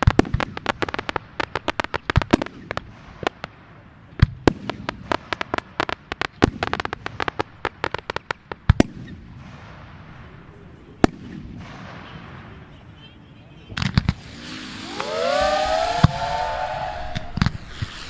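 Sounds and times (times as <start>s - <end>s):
fireworks bangs: 0.0s - 13.0s, 13.7s - 18.0s
steady hiss: 14.0s - 18.0s.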